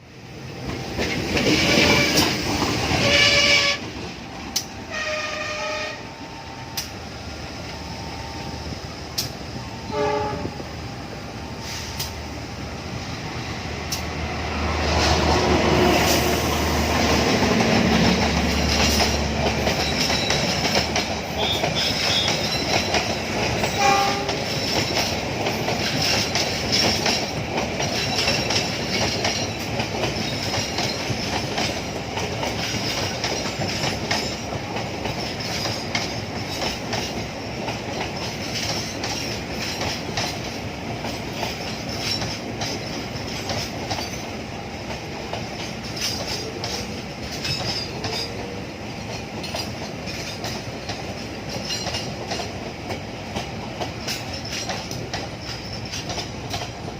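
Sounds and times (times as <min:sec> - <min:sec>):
train passing rumbling: 0:00.0 - 0:56.9
train horn blasts: 0:01.5 - 0:03.9, 0:04.8 - 0:06.4, 0:09.8 - 0:10.7, 0:23.7 - 0:24.4
wheels clattering over rail joints: 0:17.0 - 0:56.9.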